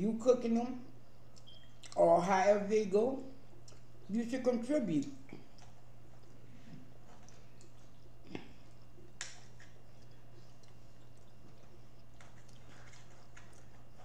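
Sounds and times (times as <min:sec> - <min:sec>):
steady low hum: 0:00.0 - 0:14.0
person chewing: 0:01.3 - 0:02.0, 0:03.5 - 0:04.1, 0:05.0 - 0:14.0.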